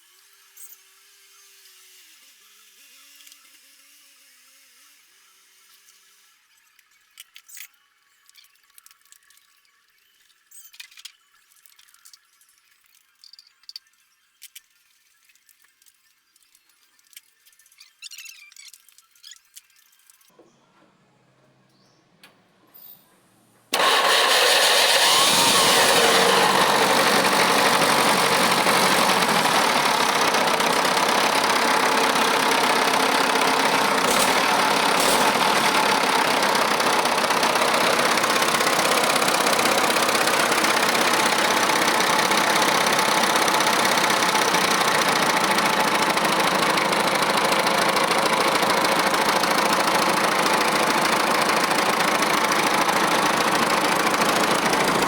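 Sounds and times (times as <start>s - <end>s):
tractor engine running: 23.8s - 55.0s.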